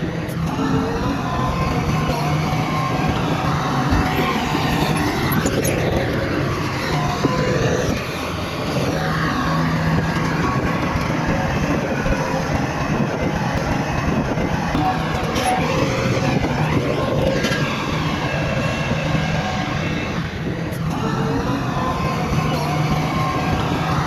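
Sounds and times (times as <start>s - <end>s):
bulldozer diesel engine under load: 0.0s - 24.0s.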